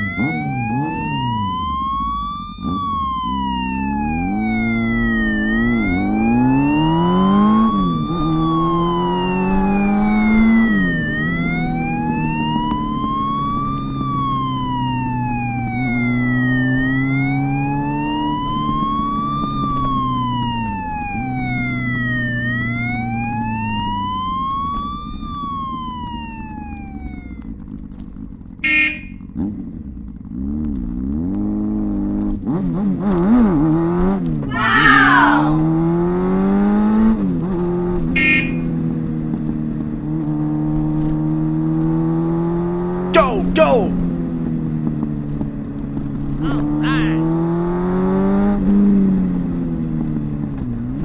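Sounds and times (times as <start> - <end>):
police siren wailing: 0.0 - 27.5, 34.5 - 35.7, 38.2 - 38.7.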